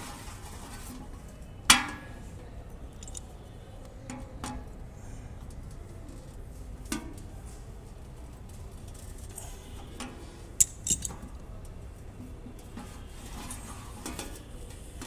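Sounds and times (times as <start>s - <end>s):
plastic parts clicking and clinking: 3.0s - 3.3s, 10.6s - 11.3s.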